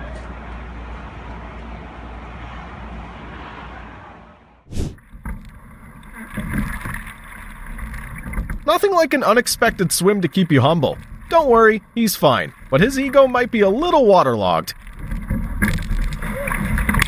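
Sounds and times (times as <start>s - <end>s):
wind and water on microphone: 4.7s - 17.0s.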